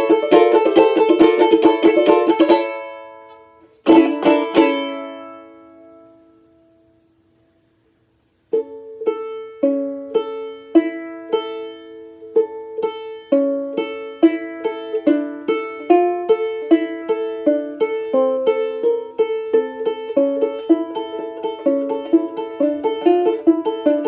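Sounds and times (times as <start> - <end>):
banjo-ukulele plucked chords: 0.0 - 7.4, 8.0 - 24.0.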